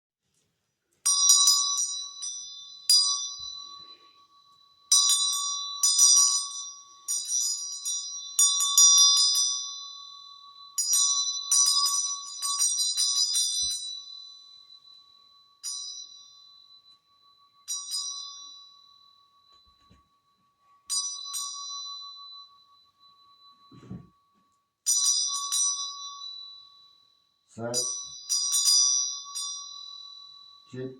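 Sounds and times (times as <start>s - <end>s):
small hand bell ringing: 1.0s - 30.9s.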